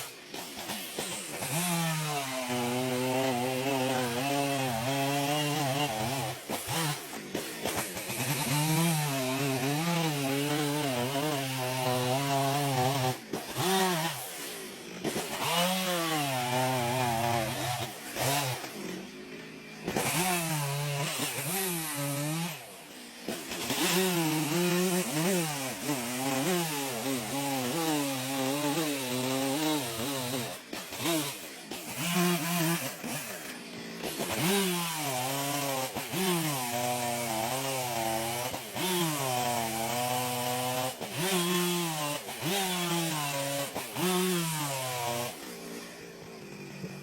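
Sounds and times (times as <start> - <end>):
chainsaw cutting wood: 0.0 - 47.0.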